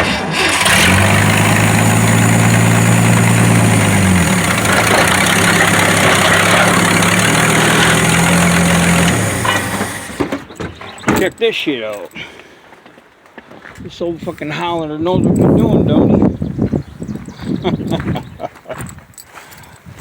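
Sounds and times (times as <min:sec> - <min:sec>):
van engine running: 0:00.0 - 0:11.0.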